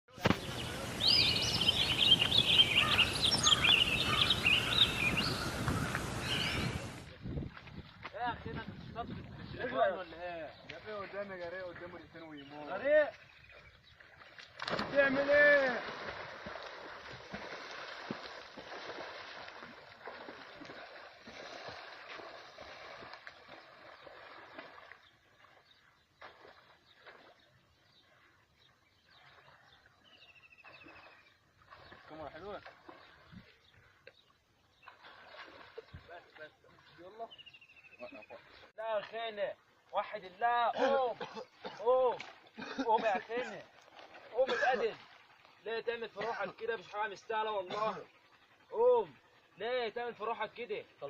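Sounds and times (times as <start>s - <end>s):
water splashing and rushing: 0.1s - 9.3s, 13.1s - 27.8s, 34.8s - 37.2s
short splash or knock: 0.2s - 0.8s, 14.6s - 19.1s
small birds chirping: 0.2s - 7.1s, 8.2s - 15.1s, 15.9s - 39.4s.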